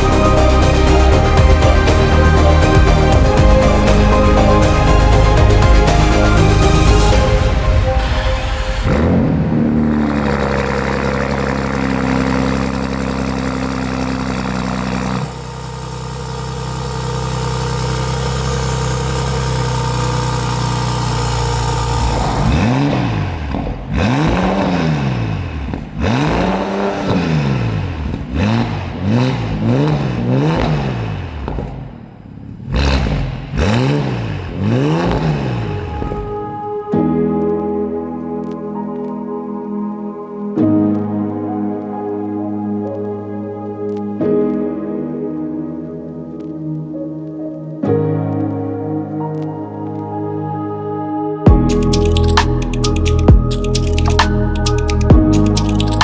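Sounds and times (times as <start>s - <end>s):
car engine idling: 0.0s - 30.6s
engine revving: 0.0s - 36.5s.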